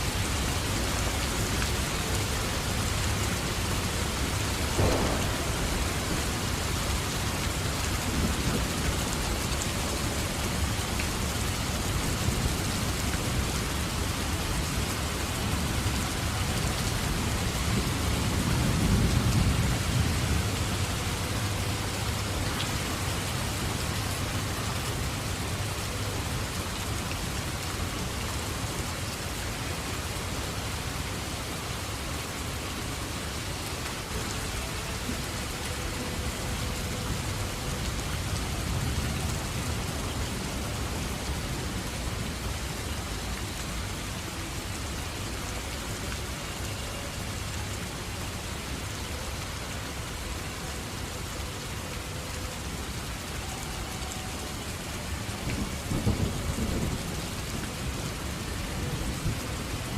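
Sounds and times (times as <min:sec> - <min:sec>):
heavy rain falling: 0:00.0 - 0:59.9
distant thunder rumbling: 0:04.7 - 0:09.1.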